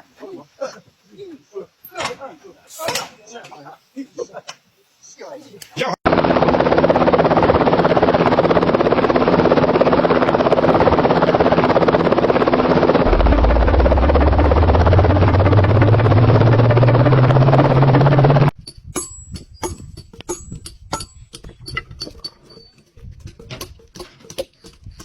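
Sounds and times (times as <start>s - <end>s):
deep hum rising in pitch: 13.0s - 18.6s
machine engine running: 13.0s - 18.6s.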